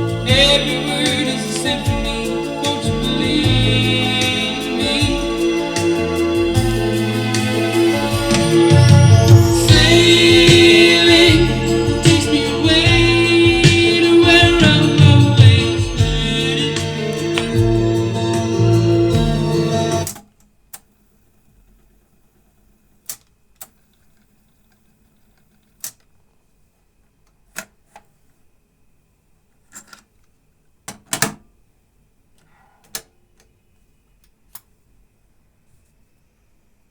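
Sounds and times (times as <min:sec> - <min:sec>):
song from cassette deck: 0:00.0 - 0:20.2.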